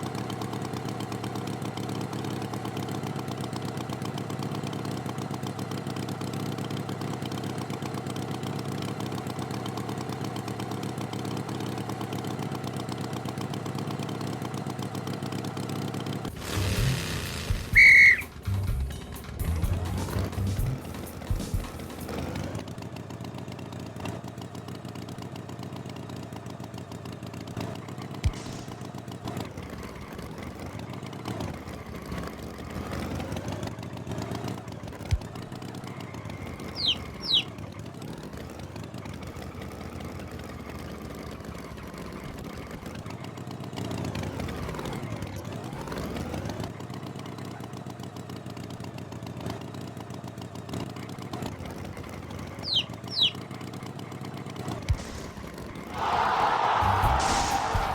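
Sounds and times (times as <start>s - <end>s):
cartoon tractor engine running: 0.0s - 57.8s
quick high chirps: 17.7s - 18.3s, 36.6s - 37.5s, 52.6s - 53.4s.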